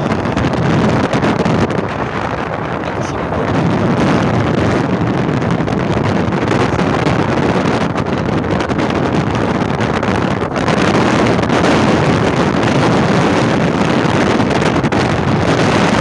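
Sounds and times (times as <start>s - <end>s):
moving vehicle noise: 0.0s - 16.0s
wind buffeting microphone: 0.0s - 16.0s.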